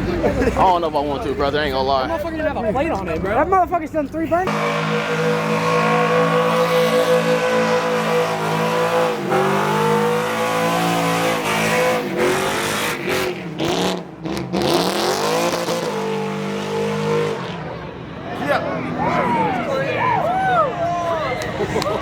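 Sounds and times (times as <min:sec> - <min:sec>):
engine revving during burnout: 0:04.5 - 0:18.0.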